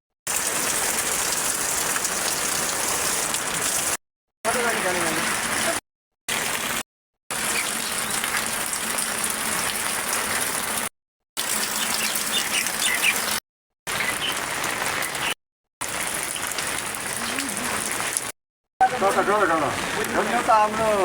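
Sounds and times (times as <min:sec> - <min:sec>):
heavy rain and runoff hiss: 0:00.3 - 0:10.8, 0:11.4 - 0:21.0.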